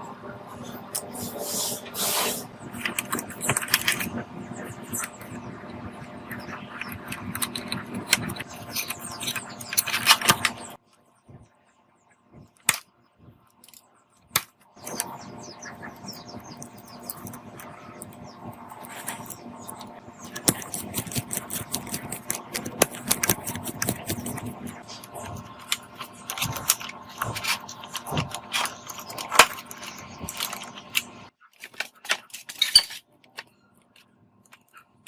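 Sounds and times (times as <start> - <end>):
steady hum: 0.0 - 31.4
small metal parts clinking: 31.6 - 33.5.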